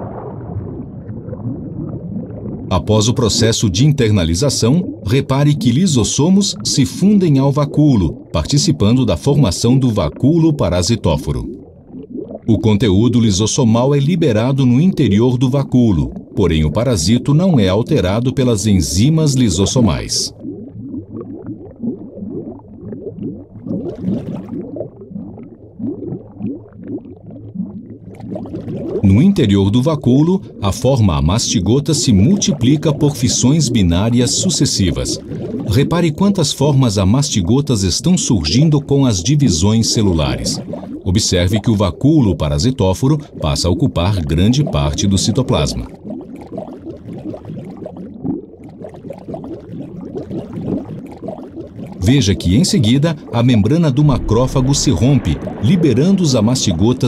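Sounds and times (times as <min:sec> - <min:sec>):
short rising bubbling blips: 0:00.0 - 0:13.5, 0:18.9 - 0:29.5, 0:31.6 - 0:36.6, 0:39.5 - 0:41.7, 0:43.2 - 0:57.0
low hum: 0:53.2 - 0:57.0.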